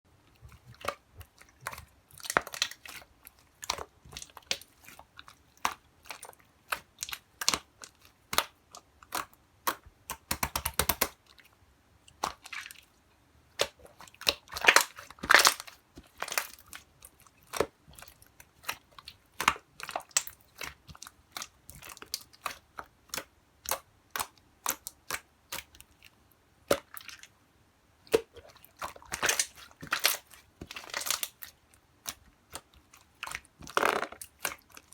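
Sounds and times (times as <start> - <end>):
crackling slime squishes: 0.1 - 11.5, 12.1 - 27.3, 28.0 - 34.9.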